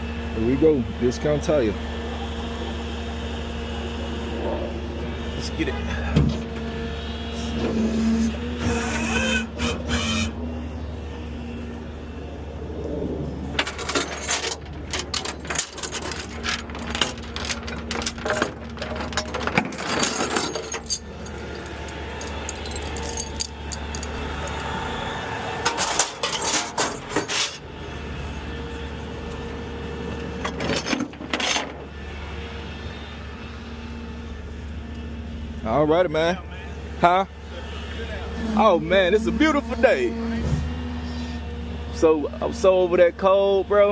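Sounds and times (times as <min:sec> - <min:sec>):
truck engine and road hum: 0:00.0 - 0:43.9
sharp clicks and rattles: 0:13.5 - 0:24.6.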